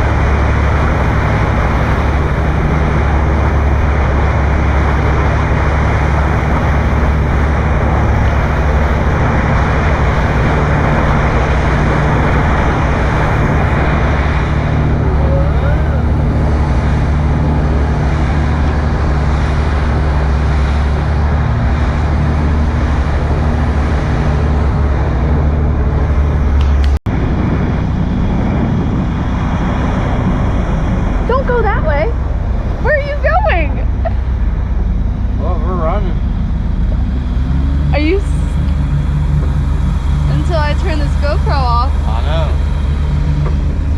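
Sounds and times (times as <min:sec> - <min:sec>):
motorboat engine hum: 0:00.0 - 0:43.9
wind and water rushing: 0:00.0 - 0:43.9.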